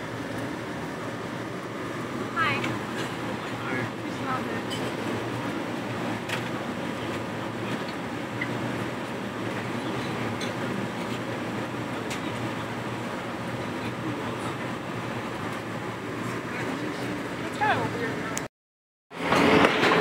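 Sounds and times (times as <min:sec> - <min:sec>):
train wheels rumbling on rail: 0:00.0 - 0:17.4, 0:19.2 - 0:20.0.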